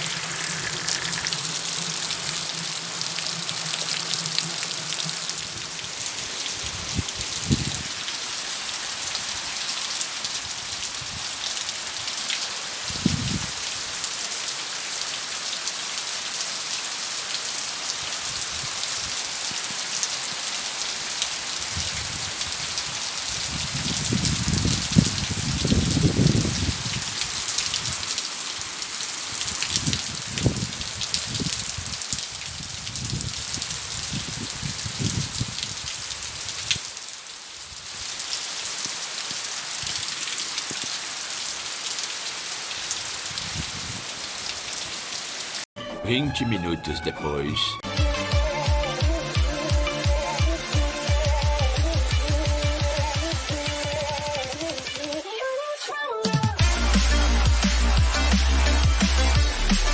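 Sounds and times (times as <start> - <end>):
rain pattering: 0.0 - 45.7.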